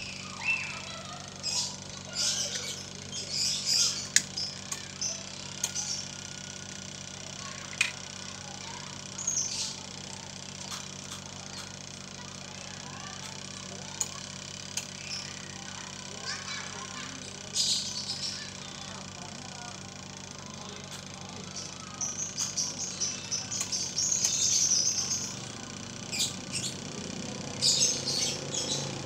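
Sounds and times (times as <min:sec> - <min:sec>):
small birds chirping: 0:00.0 - 0:29.0
steady low hum: 0:00.0 - 0:29.0
sharp clicks: 0:03.8 - 0:06.0, 0:07.6 - 0:08.2, 0:13.2 - 0:15.4, 0:22.0 - 0:26.8.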